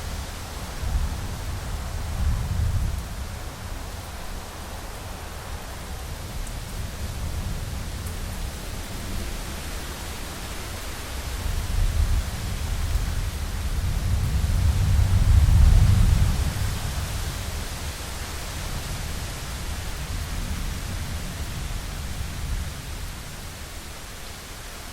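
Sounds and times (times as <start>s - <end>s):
heavy rain on a window: 0.0s - 24.9s
thunder rumbling: 11.8s - 17.6s.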